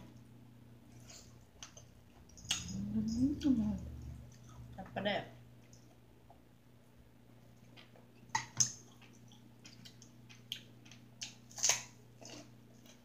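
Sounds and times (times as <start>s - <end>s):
steady low hum: 0.0s - 13.0s
person chewing food: 7.4s - 13.0s.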